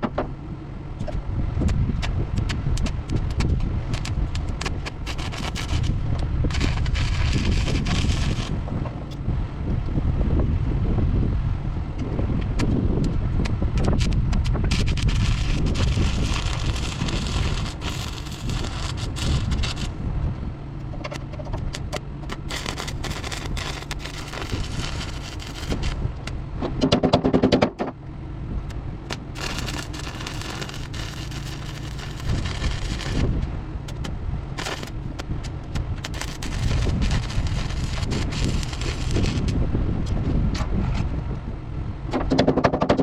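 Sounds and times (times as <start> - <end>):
welding arc crackling: 1.6 - 8.7, 13.8 - 20.0, 21.1 - 26.4, 29.0 - 39.6.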